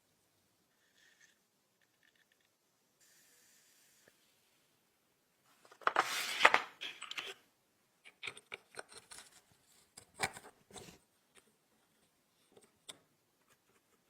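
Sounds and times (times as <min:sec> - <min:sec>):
scraping on small hard parts: 0:00.7 - 0:02.6, 0:08.0 - 0:14.0.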